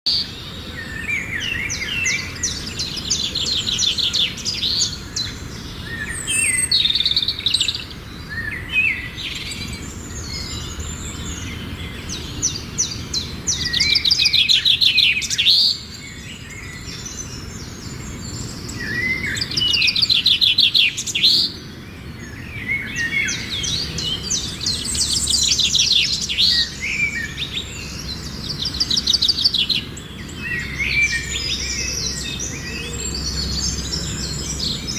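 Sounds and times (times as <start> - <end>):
songbirds singing: 0.0 - 34.9.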